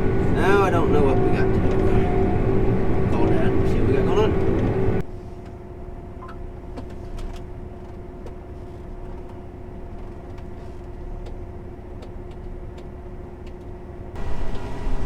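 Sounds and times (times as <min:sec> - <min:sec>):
combine harvester engine running: 0:00.0 - 0:05.0, 0:14.2 - 0:15.0.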